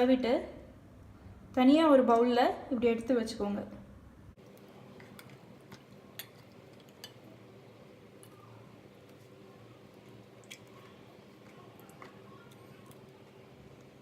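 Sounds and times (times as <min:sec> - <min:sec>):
soft squishes of paste: 0:04.4 - 0:14.0.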